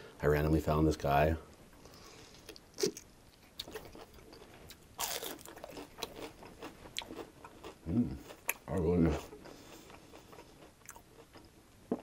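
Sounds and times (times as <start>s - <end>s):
chewing with mouth clicks: 2.3s - 11.5s.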